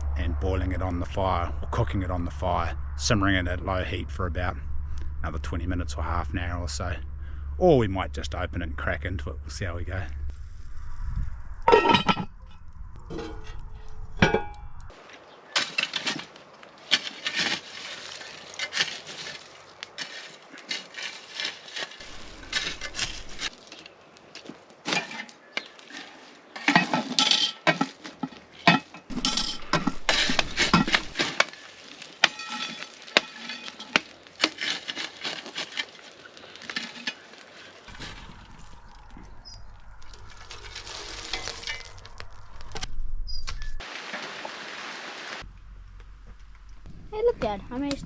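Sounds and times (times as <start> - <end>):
metal cookware clinking: 11.7 - 12.3, 14.2 - 14.7, 26.6 - 27.9, 28.6 - 31.2, 32.2 - 34.0.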